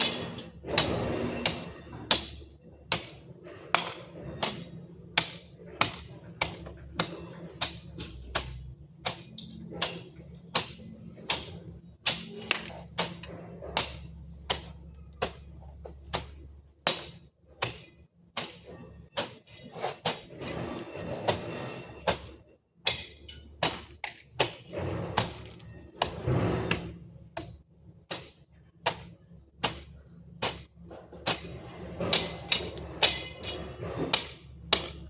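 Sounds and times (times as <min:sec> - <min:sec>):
hand tool chopping strikes: 0:03.8 - 0:15.5, 0:16.1 - 0:19.4, 0:34.1 - 0:35.0.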